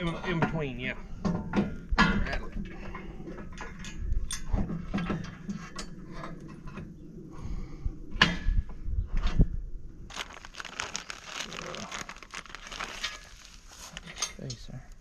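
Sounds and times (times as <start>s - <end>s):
metal tools clinking on steel frame: 14.0s - 14.8s.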